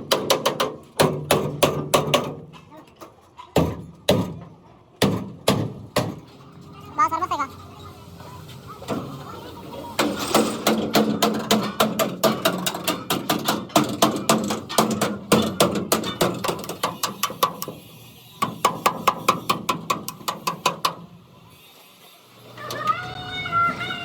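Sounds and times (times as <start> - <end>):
rapid hammer blows on metal: 18.4 - 21.1.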